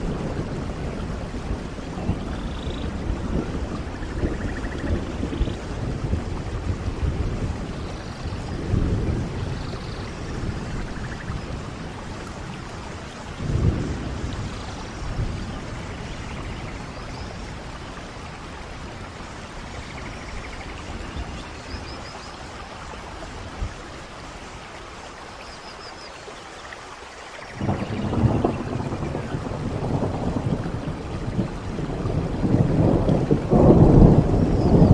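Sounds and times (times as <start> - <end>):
thunder rolling: 0.0 - 12.2, 13.3 - 17.8, 27.5 - 34.9
steady rainfall: 0.0 - 34.9.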